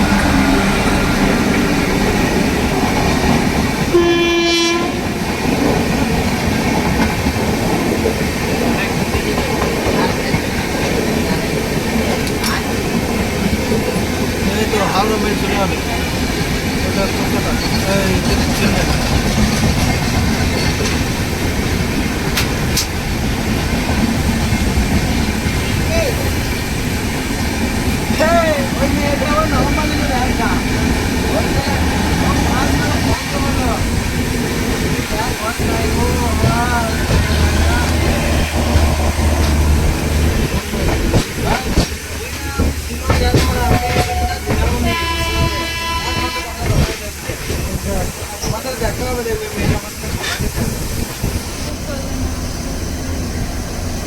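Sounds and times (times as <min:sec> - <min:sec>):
train rail clatter: 0:00.0 - 0:54.0
train horn blast: 0:03.9 - 0:05.2, 0:43.9 - 0:46.8.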